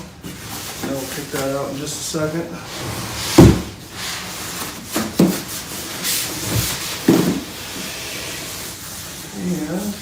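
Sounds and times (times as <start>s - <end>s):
styrofoam rubbing and squeaking: 4.1s - 10.0s.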